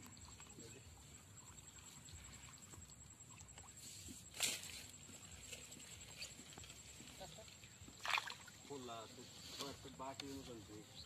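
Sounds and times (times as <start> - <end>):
knocks and rustles of fishing net: 4.0 - 7.2.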